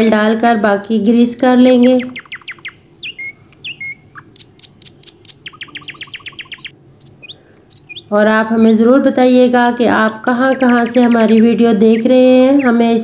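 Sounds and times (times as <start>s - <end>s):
small bird chirping: 1.7s - 8.9s, 9.8s - 13.0s.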